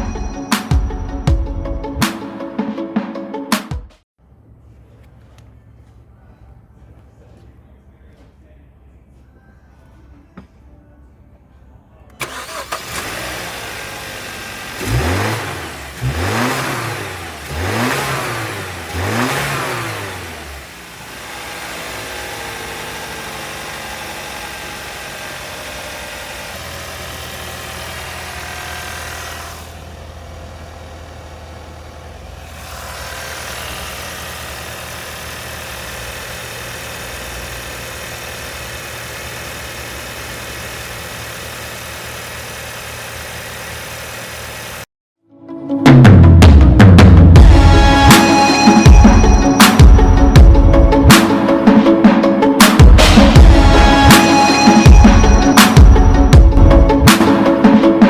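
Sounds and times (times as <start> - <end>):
car engine revving and idling: 12.1 - 44.9, 46.4 - 51.7, 52.4 - 58.0.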